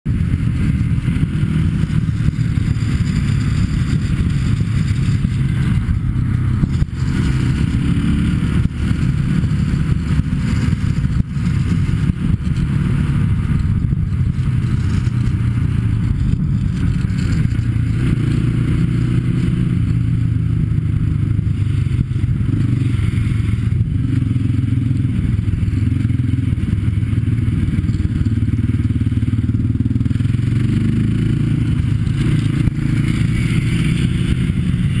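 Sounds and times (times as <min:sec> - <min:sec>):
atv engines running: 0:00.1 - 0:35.0
rattles and scrapes from riding: 0:01.8 - 0:07.9, 0:08.5 - 0:20.0, 0:31.2 - 0:35.0.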